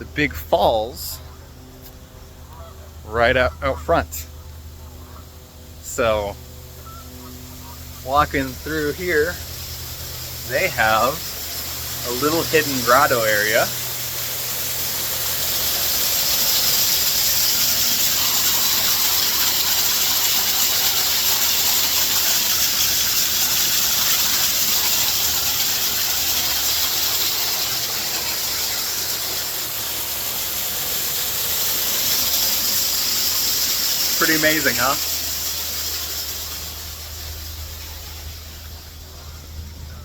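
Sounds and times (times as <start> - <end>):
waterfall rushing: 7.5 - 39.8.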